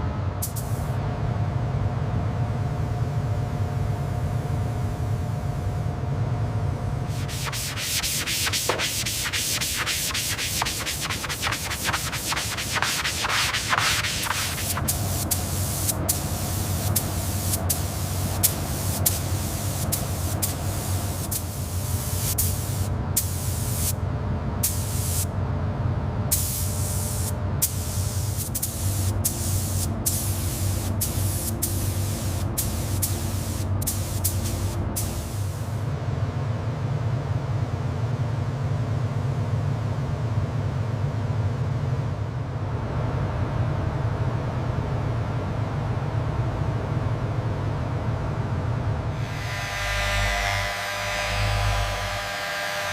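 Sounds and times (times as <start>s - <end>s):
steady low hum: 0.0s - 52.9s
abrasive rubbing on hard surface: 7.2s - 14.8s.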